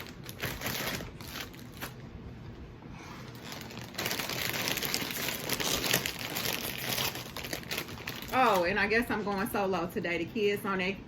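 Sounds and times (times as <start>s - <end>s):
plastic chip bag crinkling: 0.0s - 2.0s, 3.3s - 9.1s.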